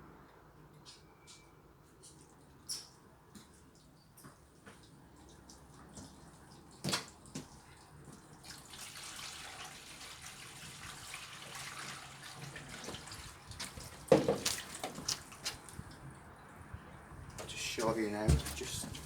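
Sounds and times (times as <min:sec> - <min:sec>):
water running from a tap: 0:08.4 - 0:15.4.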